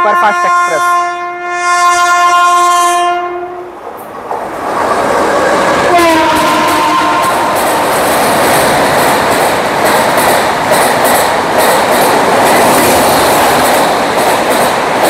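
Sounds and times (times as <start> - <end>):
train horn blast: 0.0 - 3.7, 5.9 - 7.6
train rushing past: 2.9 - 15.0.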